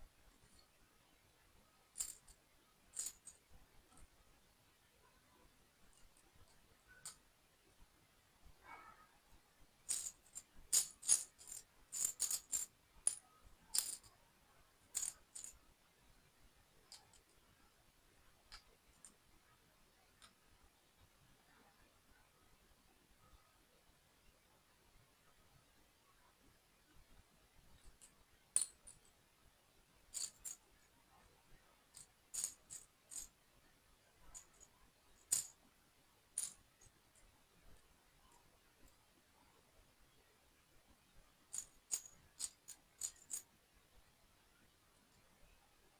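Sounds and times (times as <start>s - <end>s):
toy pieces clicking and tapping: 2.0s - 3.4s, 9.9s - 14.1s, 14.9s - 15.6s, 30.1s - 30.6s, 32.0s - 33.3s, 34.3s - 35.5s, 41.5s - 43.4s.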